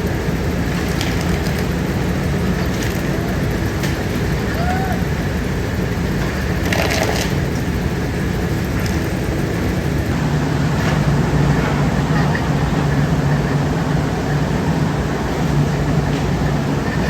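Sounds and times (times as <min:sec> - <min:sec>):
factory machinery drone: 0:00.0 - 0:17.0
faint clicks: 0:00.6 - 0:04.6.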